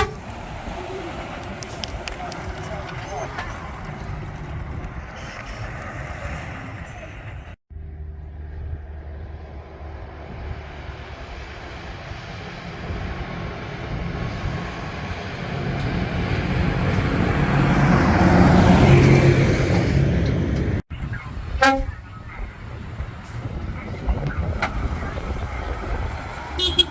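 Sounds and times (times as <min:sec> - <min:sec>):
short horn toot: 0:00.0 - 0:00.2, 0:21.6 - 0:22.0
lorry diesel engine passing: 0:00.0 - 0:26.9.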